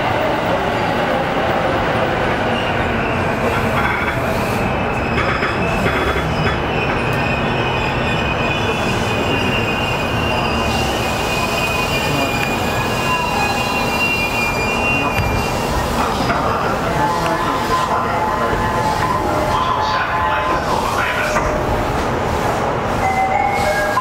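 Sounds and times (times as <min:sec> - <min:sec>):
train wheel and rail noise: 0:00.0 - 0:24.0
high wheel squeal: 0:02.5 - 0:20.3.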